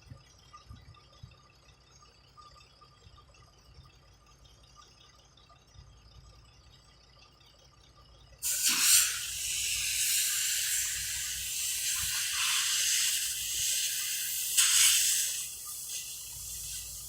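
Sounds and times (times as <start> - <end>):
air brakes hissing: 8.4 - 17.0.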